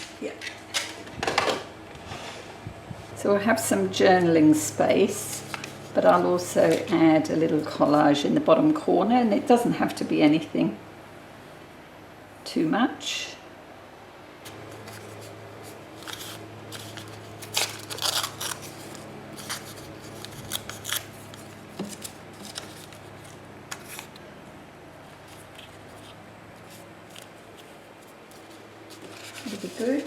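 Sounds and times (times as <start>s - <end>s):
paper being handled: 5.2s - 7.1s, 14.5s - 24.2s, 25.1s - 30.0s
scissors snipping paper: 16.0s - 23.0s.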